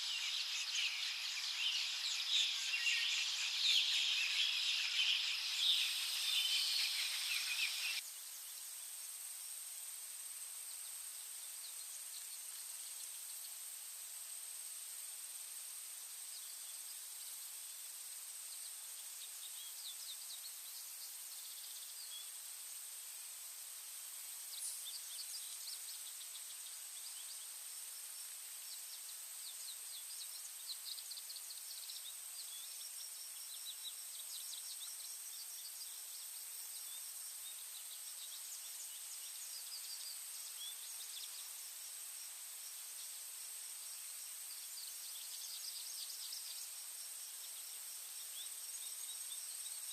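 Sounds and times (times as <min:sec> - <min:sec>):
small birds chirping and trilling: 0:00.0 - 0:08.7, 0:24.1 - 0:49.9
steady high hiss: 0:00.0 - 0:49.9.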